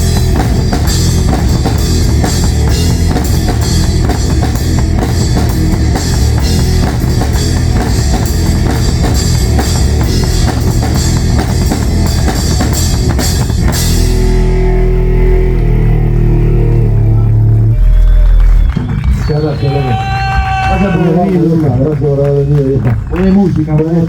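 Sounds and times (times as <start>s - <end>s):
drums fast steady beat: 0.0s - 14.6s
rock band playing: 0.0s - 23.9s.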